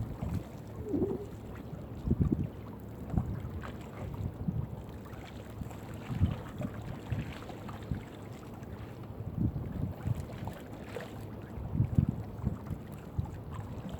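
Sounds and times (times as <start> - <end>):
wind on microphone: 0.0 - 2.6, 9.3 - 10.3, 11.6 - 13.4
water around hull: 0.0 - 13.9.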